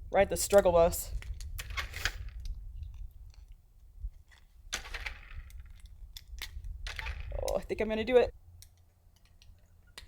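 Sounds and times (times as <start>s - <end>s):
small metallic clicks: 8.5s - 10.0s.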